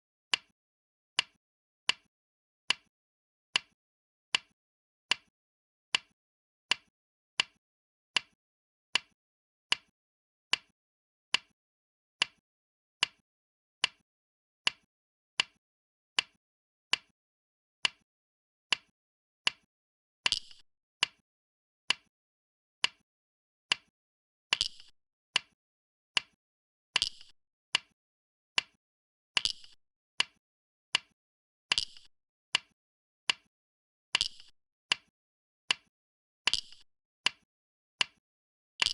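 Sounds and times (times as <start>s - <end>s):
stones clicking on a board: 24.5s - 25.6s, 27.0s - 27.9s, 29.4s - 30.4s, 31.7s - 32.7s, 34.2s - 35.1s, 36.5s - 37.4s.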